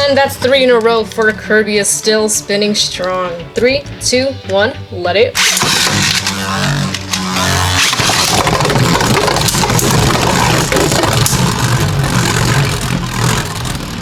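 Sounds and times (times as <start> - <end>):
spinning tops whirring: 5.4 - 14.0
tops clicking and clattering: 5.4 - 14.0.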